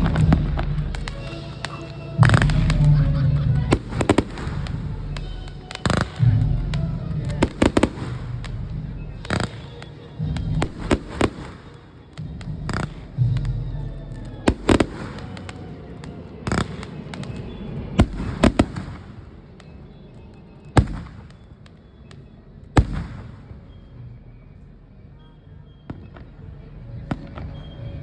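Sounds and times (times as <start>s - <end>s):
low rumble: 0.0s - 1.4s, 2.2s - 9.3s
fireworks bangs: 0.0s - 24.7s.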